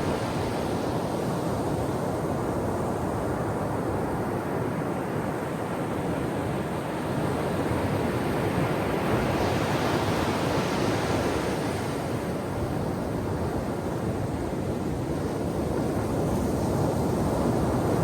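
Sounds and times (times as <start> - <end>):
ocean waves breaking on shore: 0.0 - 1.1.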